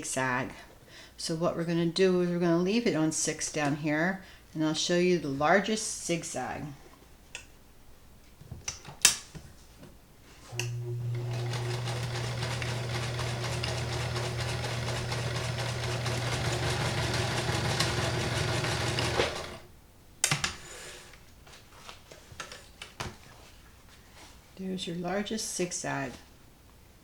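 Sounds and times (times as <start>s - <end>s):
sewing machine running: 10.6s - 19.7s.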